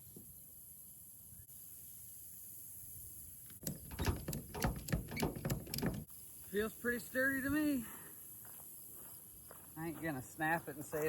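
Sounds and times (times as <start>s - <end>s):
crickets chirping: 0.4s - 11.0s
bicycle knocking and rattling: 3.6s - 6.1s.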